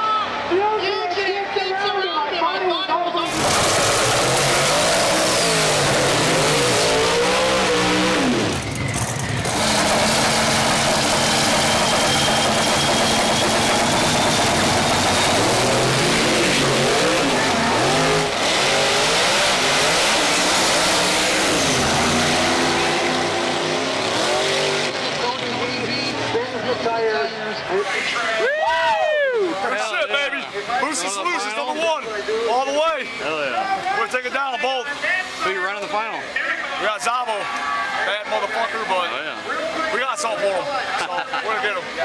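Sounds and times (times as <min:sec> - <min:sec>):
drag car engine revving: 0:03.2 - 0:26.8.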